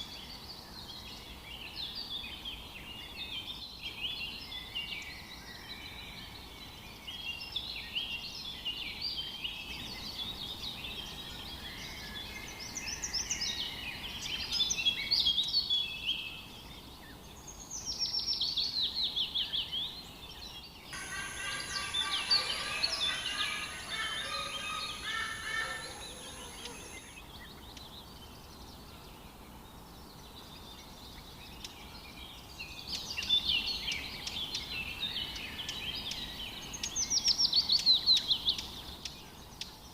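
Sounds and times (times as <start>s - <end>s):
birds chirping and trilling: 20.9s - 27.5s
lower-pitched bird calls: 21.0s - 27.2s
steady high whine: 21.0s - 27.2s.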